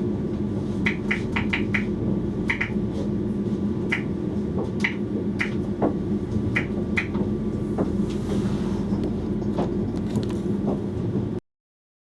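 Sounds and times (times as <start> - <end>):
electric train hum: 0.0 - 11.4
sharp clicks and knocks: 0.8 - 1.9, 2.5 - 2.8, 3.9 - 7.9.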